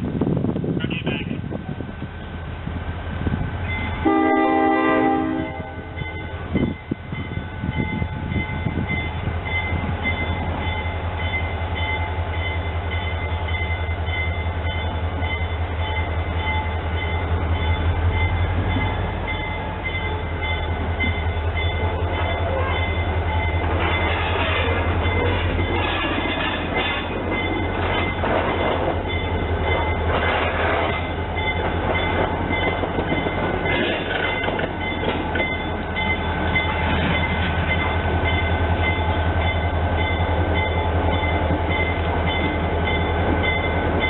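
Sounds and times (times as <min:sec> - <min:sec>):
train rumble: 0:00.0 - 0:44.0
train horn blast: 0:04.0 - 0:06.0.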